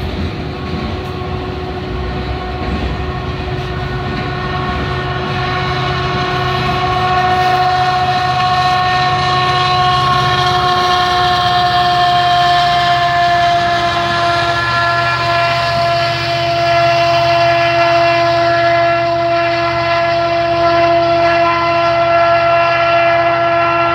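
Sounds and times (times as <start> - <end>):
freight train rumbling: 0.0 - 23.9
train horn blast: 0.0 - 23.9.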